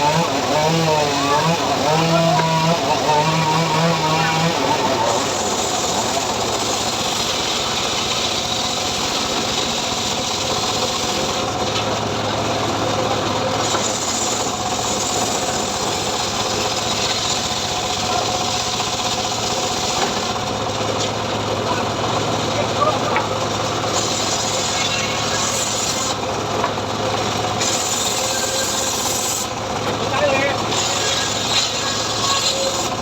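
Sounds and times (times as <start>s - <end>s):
saw blade rasping through log: 0.0s - 11.5s, 13.6s - 20.4s, 23.2s - 26.2s, 27.4s - 29.6s, 30.2s - 33.0s
engine hum: 0.0s - 33.0s.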